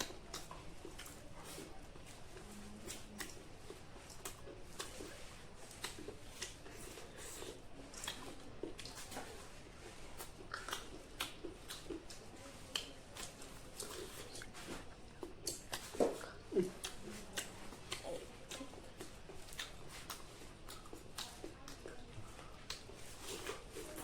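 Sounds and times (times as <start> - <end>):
wet mouth clicks: 0.0 - 1.2, 4.1 - 9.1, 10.2 - 14.6, 15.2 - 22.0, 22.6 - 22.9.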